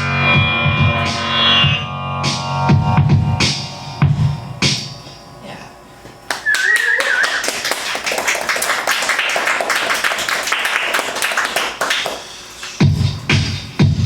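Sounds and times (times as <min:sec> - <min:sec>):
wavering whistle: 0:06.3 - 0:07.6
audience clapping: 0:06.3 - 0:12.8.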